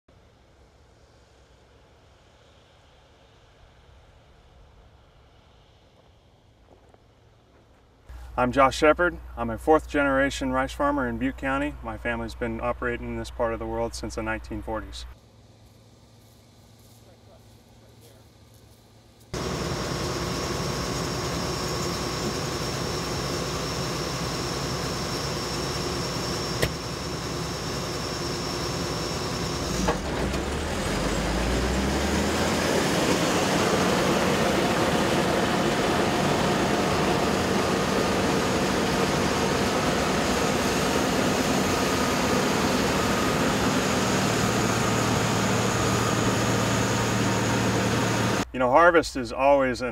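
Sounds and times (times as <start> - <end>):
heavy machinery running: 19.4 - 48.4.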